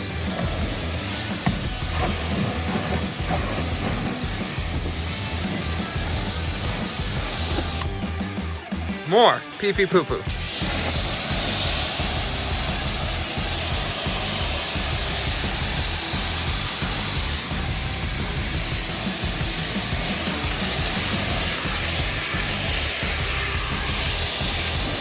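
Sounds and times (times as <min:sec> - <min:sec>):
pressure washer spraying water: 0:00.0 - 0:25.0.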